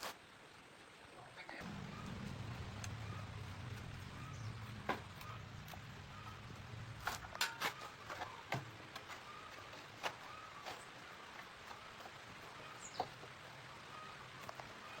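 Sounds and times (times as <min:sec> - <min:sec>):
hand tools clicking and knocking: 0:07.0 - 0:12.2.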